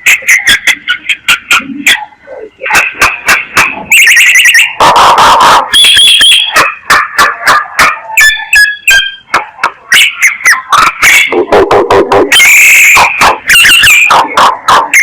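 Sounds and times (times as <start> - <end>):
harsh rasping bird call: 1.6 - 15.0
high whistled bird notes: 3.4 - 6.8, 12.3 - 15.0
myna warbling whistle: 3.7 - 6.8, 11.1 - 15.0.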